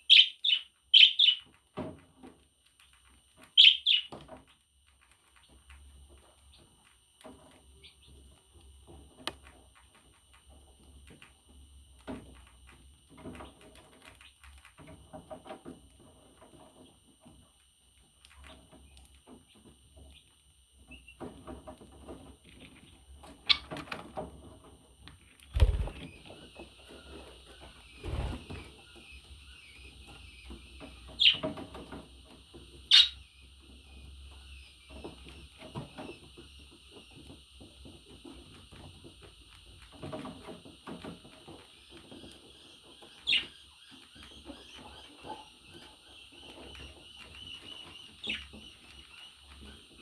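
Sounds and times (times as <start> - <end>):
budgerigar sharp calls: 0.1 - 1.4, 3.6 - 4.1, 32.9 - 33.2
budgerigar warbling: 32.9 - 33.2.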